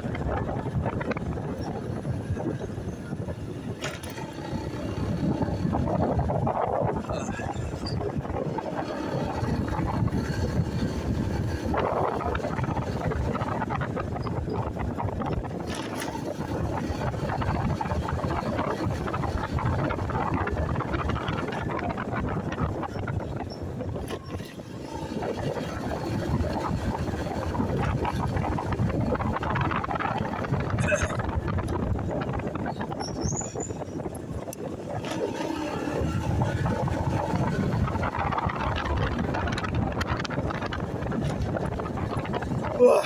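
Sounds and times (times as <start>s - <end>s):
motorcycle engine: 0.0s - 20.2s
road noise: 0.0s - 43.0s
wind rushing over microphone: 0.0s - 43.0s.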